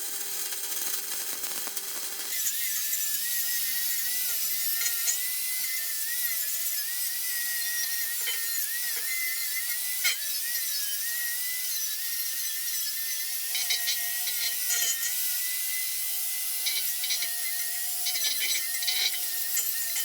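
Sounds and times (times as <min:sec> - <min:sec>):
welder arc hissing: 0:00.0 - 0:02.3
welding crackle: 0:00.0 - 0:02.3.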